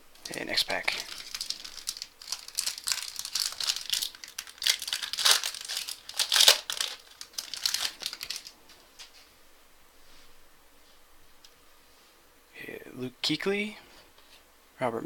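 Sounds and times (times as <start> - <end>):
foil pack tearing and crinkling: 0.2 - 8.5.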